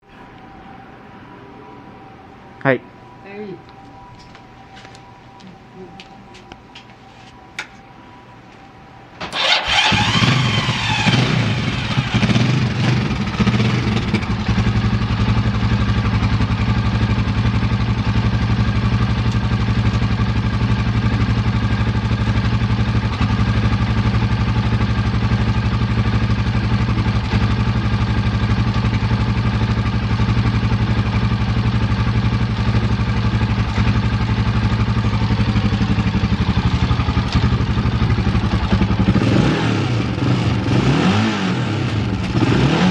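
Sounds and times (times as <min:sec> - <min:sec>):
motorcycle engine starting and idling: 0:09.2 - 0:42.9.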